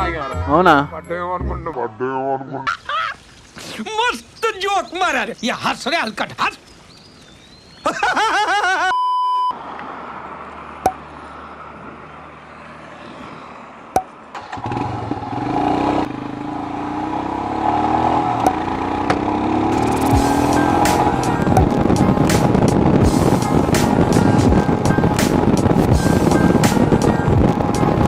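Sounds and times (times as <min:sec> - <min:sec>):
short steady beep: 0:08.9 - 0:09.6
motorcycle engine pulling away: 0:14.3 - 0:23.4.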